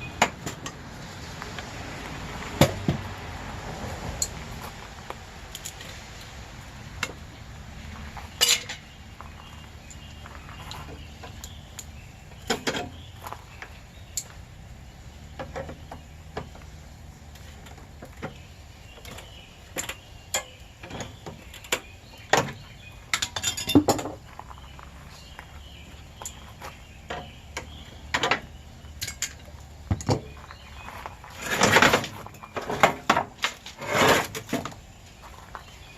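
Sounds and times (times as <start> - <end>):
metallic clinks and knocks: 23.1 - 24.2.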